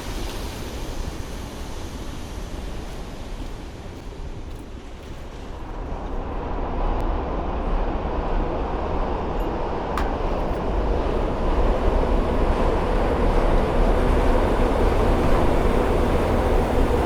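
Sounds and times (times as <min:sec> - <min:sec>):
bike tyres on wet road: 0:00.0 - 0:07.7.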